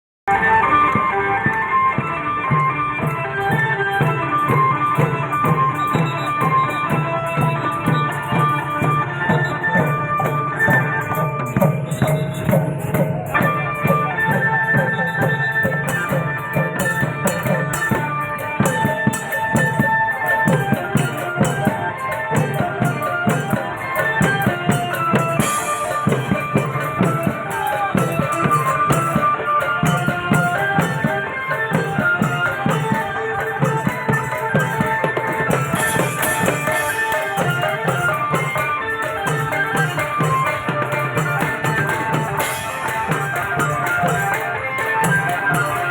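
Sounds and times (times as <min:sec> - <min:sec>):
held melody line: 0:00.3 - 0:45.9
jingling percussion: 0:00.3 - 0:45.9
drum strokes: 0:00.4 - 0:45.9.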